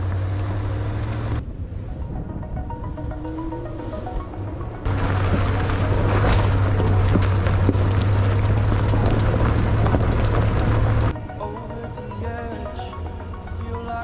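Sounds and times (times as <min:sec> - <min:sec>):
truck low rumble: 0:00.0 - 0:11.2.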